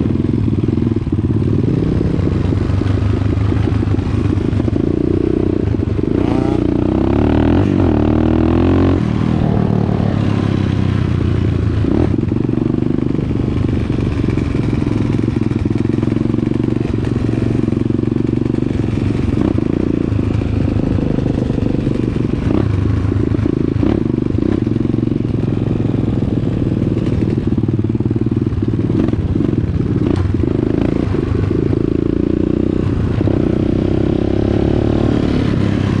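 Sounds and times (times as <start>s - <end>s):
dirt bike engine revving: 1.5s - 16.0s.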